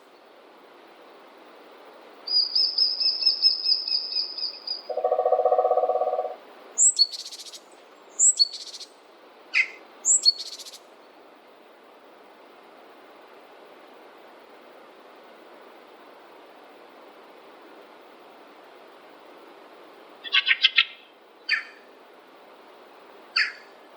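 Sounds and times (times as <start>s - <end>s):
background hiss: 0.0s - 23.9s
bird lower pulsed trill: 2.3s - 7.2s
bird high rapid trill: 2.3s - 8.9s, 23.4s - 23.7s
bird call with buzzy rattle: 4.4s - 7.5s.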